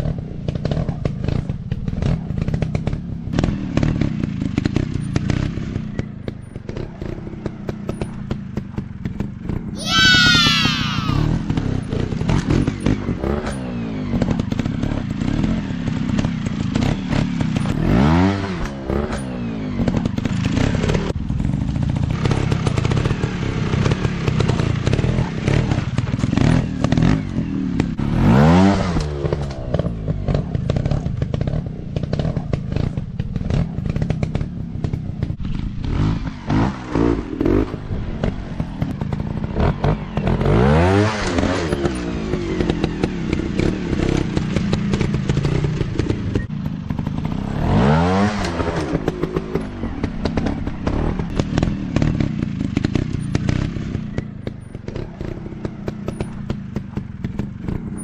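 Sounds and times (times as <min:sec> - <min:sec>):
dirt bike engines revving: 0:06.7 - 0:58.0.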